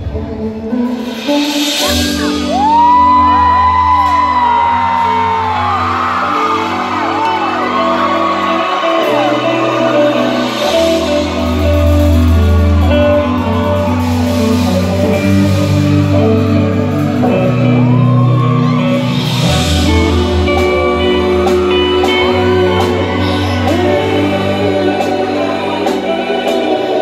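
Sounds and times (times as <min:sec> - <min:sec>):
guitar: 0:00.0 - 0:27.0
live band music: 0:00.0 - 0:27.0.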